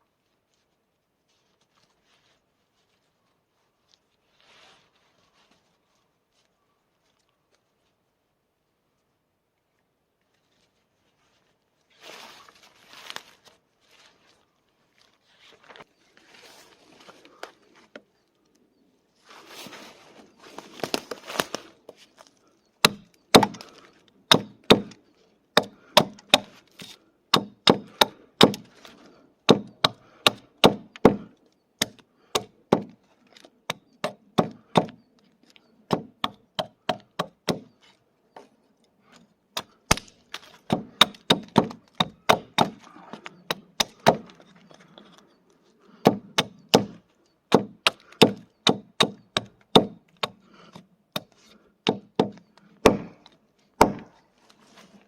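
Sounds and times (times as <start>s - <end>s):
hatchet chopping firewood: 22.8s - 45.2s, 45.9s - 54.2s.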